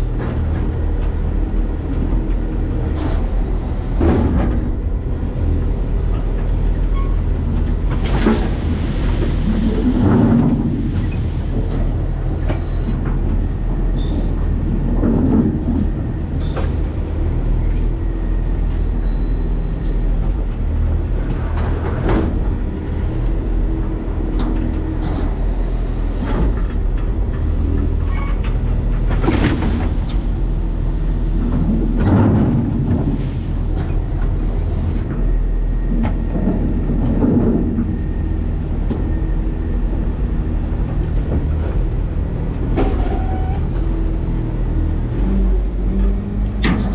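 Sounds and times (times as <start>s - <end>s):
garbage truck engine rumbling: 0.0s - 46.9s
clanks and rattles: 46.0s - 46.9s.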